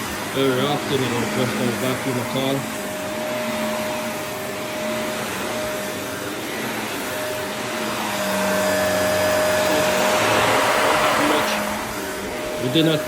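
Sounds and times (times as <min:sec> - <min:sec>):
vacuum cleaner whooshing: 0:00.0 - 0:13.0.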